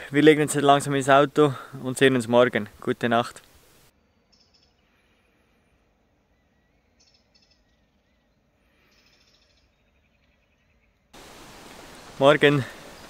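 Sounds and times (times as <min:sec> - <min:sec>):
faint bird chirps: 0:03.9 - 0:11.1.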